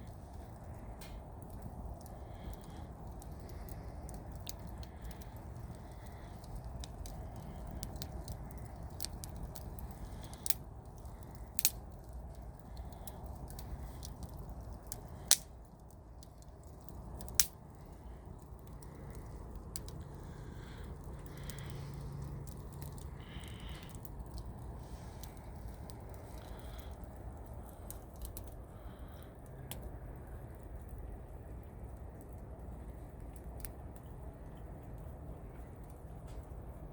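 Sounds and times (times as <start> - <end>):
campfire crackling: 0.0 - 36.9
sharp pops and snaps: 0.6 - 28.6.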